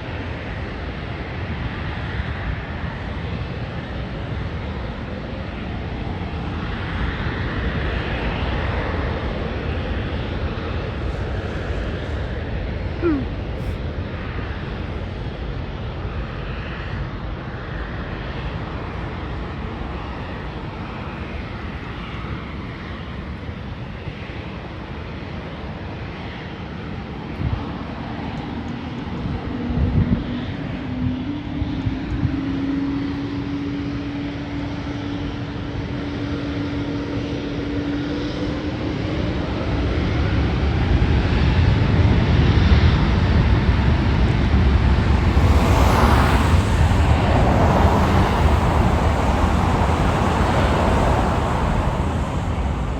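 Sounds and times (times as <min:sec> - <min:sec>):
jet engine rumble: 0:41.8 - 0:52.9
low hum: 0:44.0 - 0:52.9.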